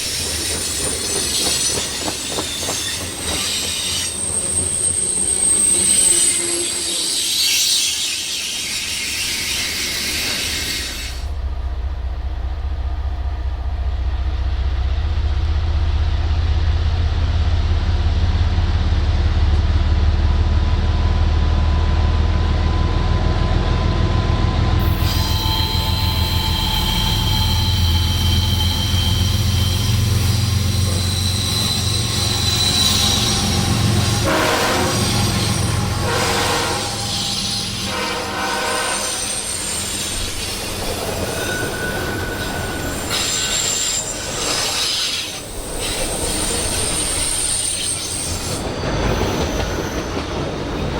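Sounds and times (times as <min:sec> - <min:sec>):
train wheels squealing: 0:00.0 - 0:11.4, 0:24.2 - 0:50.9
freight train rumble: 0:00.0 - 0:50.9.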